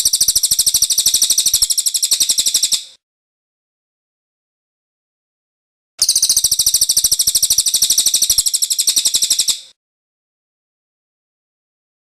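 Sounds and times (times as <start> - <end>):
bird singing rolling trill: 6.0 - 9.6.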